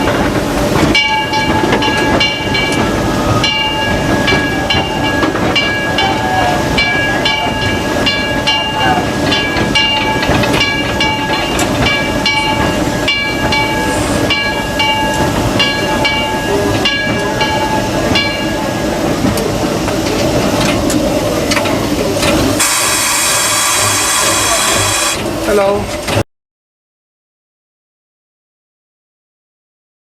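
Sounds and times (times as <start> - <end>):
locomotive bell ringing: 0.0 - 26.0
locomotive engine rumble: 0.0 - 26.2
loud hiss of steam: 13.7 - 14.4, 20.3 - 25.8.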